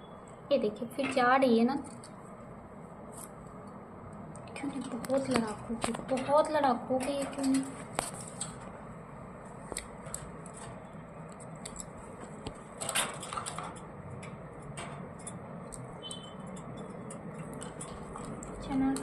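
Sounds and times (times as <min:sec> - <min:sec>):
parrots nibbling with beaks: 0:09.6 - 0:19.0.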